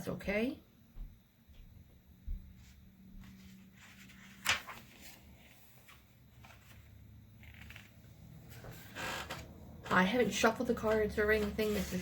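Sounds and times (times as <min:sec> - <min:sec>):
paper cards rustling: 0:02.6 - 0:09.6, 0:10.8 - 0:12.0.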